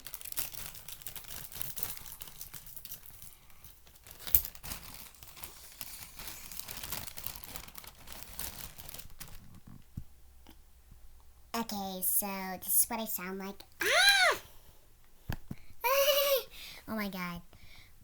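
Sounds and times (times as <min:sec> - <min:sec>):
balloon crinkling and crackling: 0:00.0 - 0:10.1.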